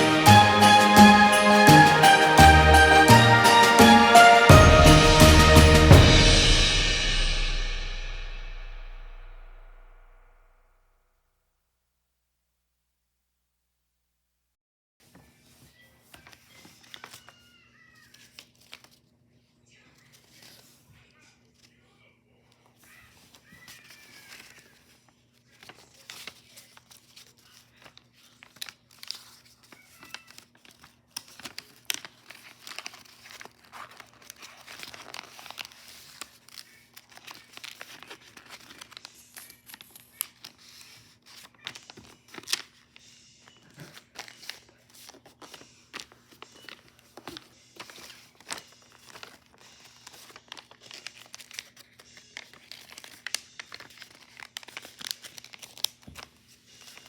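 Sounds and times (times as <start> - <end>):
paper crinkling and rustling: 15.0 - 21.8, 22.4 - 57.0.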